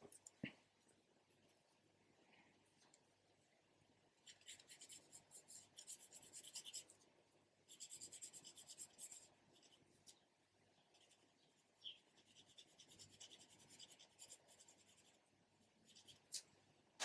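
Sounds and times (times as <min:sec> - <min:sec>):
pencil shading on paper: 0:04.3 - 0:06.8, 0:07.7 - 0:09.8, 0:12.1 - 0:15.2.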